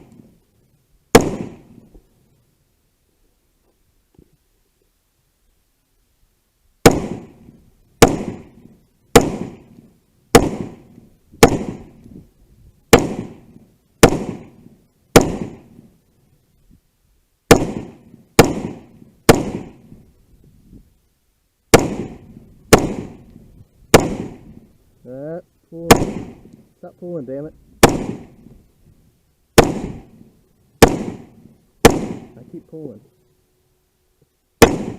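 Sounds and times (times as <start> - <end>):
gunshots with echo: 1.2 - 1.6, 10.4 - 10.8, 11.4 - 11.9, 12.9 - 13.4, 14.0 - 14.6, 17.5 - 19.8, 21.7 - 23.2, 23.9 - 24.5, 25.8 - 26.4, 27.8 - 28.4, 29.6 - 30.1, 30.8 - 32.5, 34.6 - 34.9.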